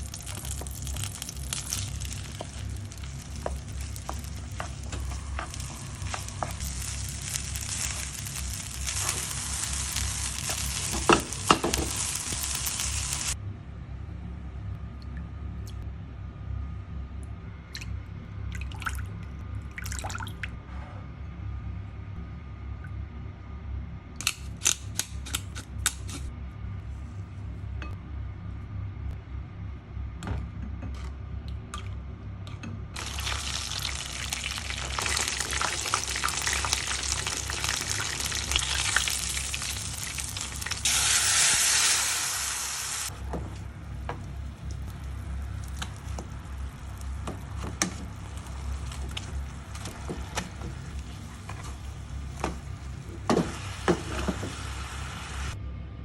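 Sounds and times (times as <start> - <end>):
steady low hum: 0.0 - 19.8, 25.8 - 33.1
water running from a tap: 33.0 - 43.1.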